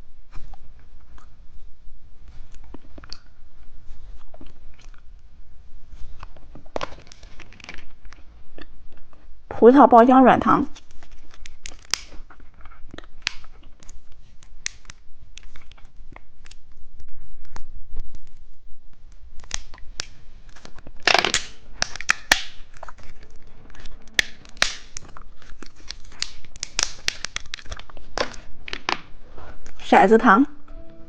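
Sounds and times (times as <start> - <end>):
plastic packaging crinkling: 10.7 - 16.6, 19.4 - 29.7
plastic packaging tearing: 10.7 - 16.6, 19.4 - 29.1.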